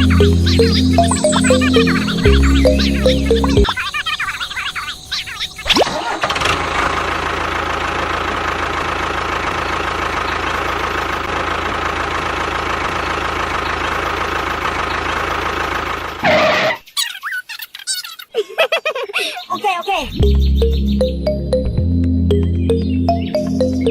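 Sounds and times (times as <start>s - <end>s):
tractor engine running: 0.0s - 3.8s, 5.9s - 16.8s.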